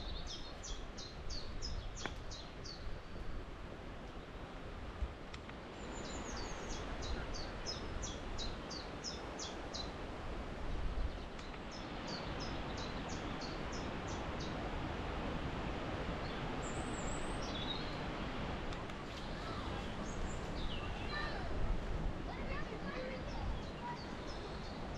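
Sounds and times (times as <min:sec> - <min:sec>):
songbird singing: 0:00.0 - 0:03.4, 0:05.8 - 0:10.1, 0:10.9 - 0:14.7, 0:16.2 - 0:21.7, 0:22.3 - 0:24.9
wind buffeting microphone: 0:00.0 - 0:05.3, 0:06.0 - 0:24.9.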